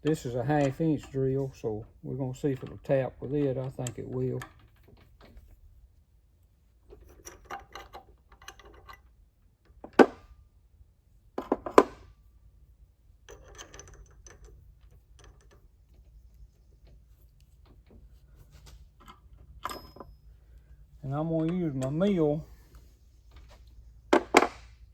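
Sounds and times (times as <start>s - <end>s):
metal tools rustling and clicking: 0.1s - 1.7s, 6.9s - 9.1s, 13.2s - 20.6s.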